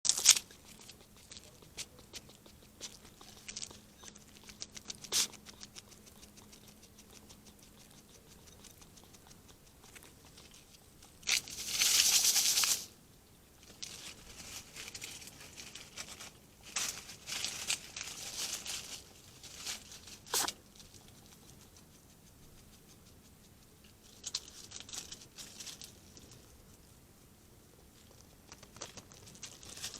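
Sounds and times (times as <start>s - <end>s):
hedgehog clicking and snuffling: 0.1s - 12.9s, 13.5s - 29.9s
hedgehog hissing: 0.3s - 12.9s, 20.1s - 23.6s.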